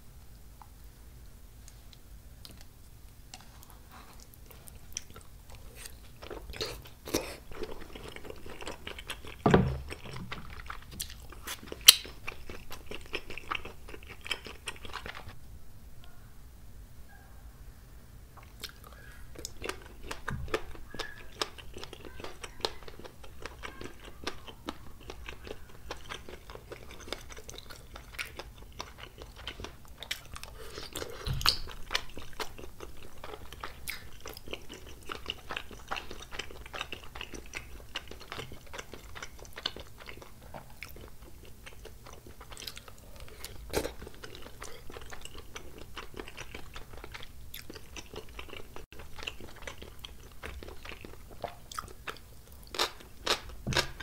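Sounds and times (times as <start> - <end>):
chewing mouth clicks: 4.2 - 15.4.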